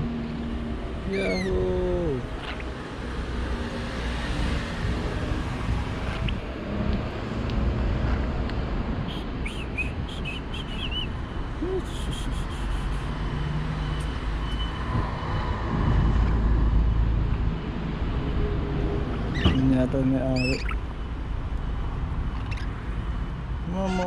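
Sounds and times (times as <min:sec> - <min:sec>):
low rumble of traffic or wind: 0:00.0 - 0:24.0
parrots chirping: 0:01.1 - 0:01.6, 0:09.4 - 0:11.1, 0:19.1 - 0:19.7, 0:20.3 - 0:20.9, 0:22.2 - 0:22.9.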